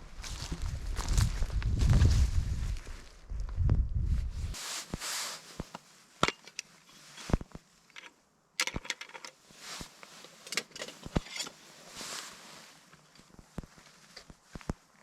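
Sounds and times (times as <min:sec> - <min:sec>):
rustling: 0:04.2 - 0:08.2, 0:09.2 - 0:15.0.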